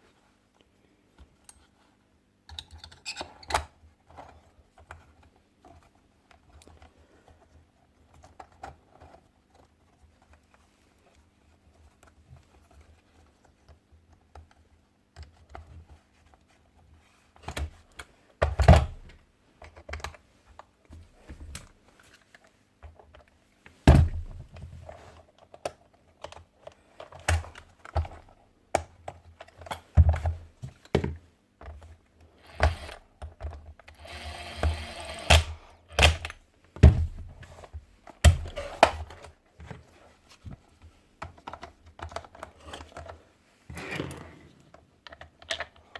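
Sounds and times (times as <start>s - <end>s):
nail gun parts clicking and knocking: 32.4s - 36.4s.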